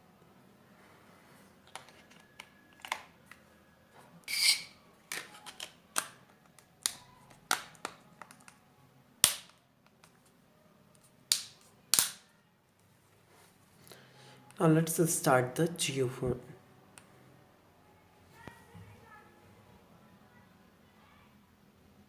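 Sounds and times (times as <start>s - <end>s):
plastic phone parts snapping: 1.6s - 3.4s, 5.1s - 8.6s, 9.2s - 10.2s, 11.3s - 12.2s.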